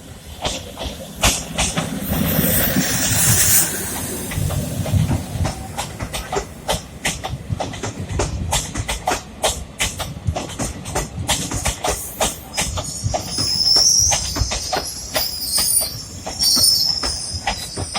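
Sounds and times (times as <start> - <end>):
train engine rumble: 0.0 - 17.9
air hiss: 1.0 - 6.8, 11.8 - 17.6.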